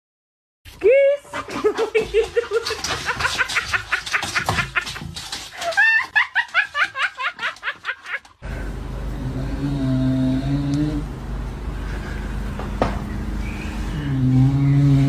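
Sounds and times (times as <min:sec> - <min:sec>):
person laughing hard: 0:05.6 - 0:08.4
steady low hum: 0:08.4 - 0:15.0.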